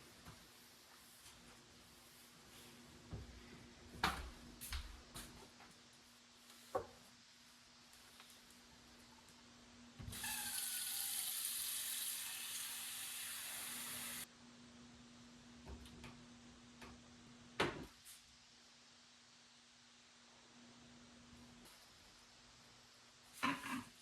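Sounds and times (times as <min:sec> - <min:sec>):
water running from a tap: 0:10.1 - 0:14.3.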